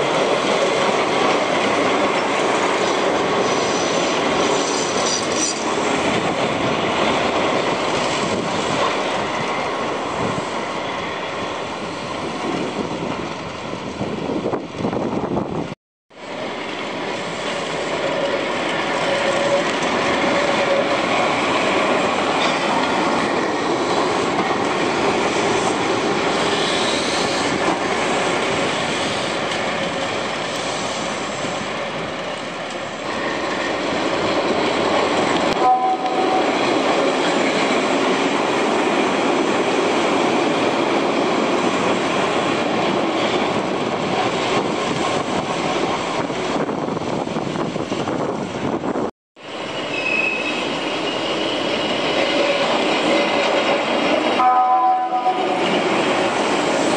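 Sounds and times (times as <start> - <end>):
electric train running past: 0.0 - 56.9
wheel squeals: 49.6 - 52.8.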